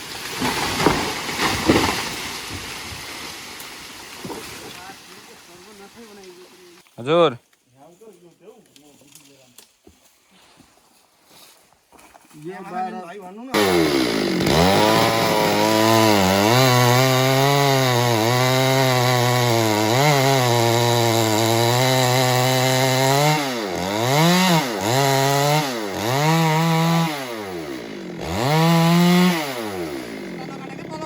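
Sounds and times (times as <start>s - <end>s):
chainsaw revving: 13.5s - 31.0s.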